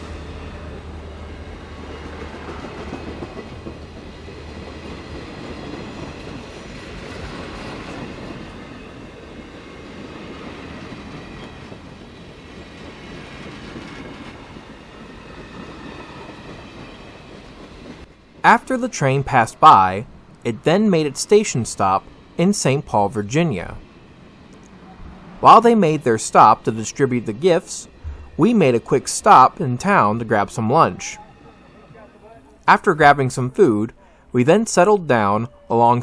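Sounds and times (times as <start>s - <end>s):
train wheels on track: 0.0s - 32.6s
low hum: 27.9s - 28.7s.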